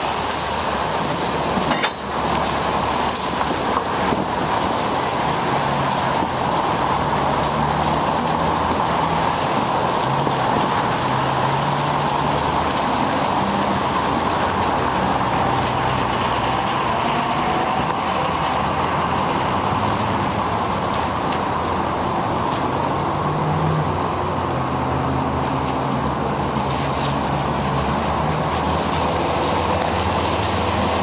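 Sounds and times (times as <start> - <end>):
bicycle tyres hissing on wet road: 0.0 - 31.0
motor traffic: 0.0 - 31.0.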